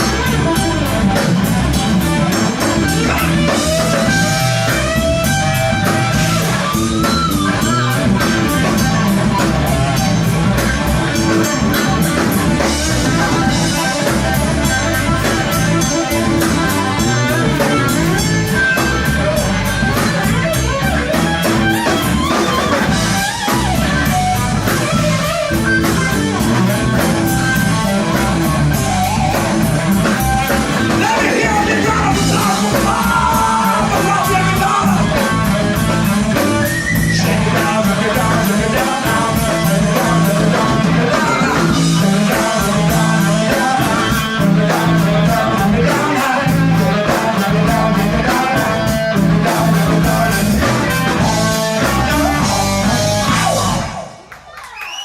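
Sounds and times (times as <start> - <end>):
bass guitar: 0.0 - 54.4
drum kit: 0.0 - 54.4
electric guitar: 0.0 - 54.6
person singing: 30.9 - 54.2.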